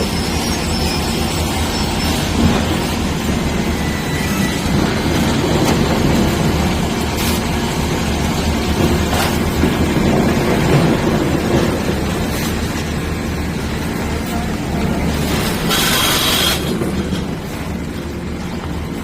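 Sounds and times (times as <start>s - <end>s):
heavy machinery rumbling: 0.0s - 19.0s.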